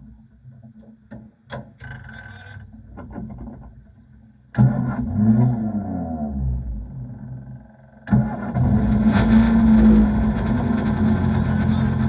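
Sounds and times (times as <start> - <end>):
race car engine revving: 8.1 - 12.0.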